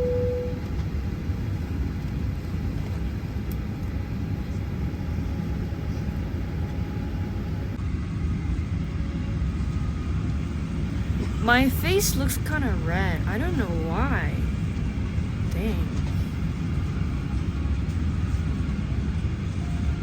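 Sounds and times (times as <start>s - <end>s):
faint steady hum: 0.0s - 1.5s
airliner cabin engine rumble: 0.0s - 20.0s.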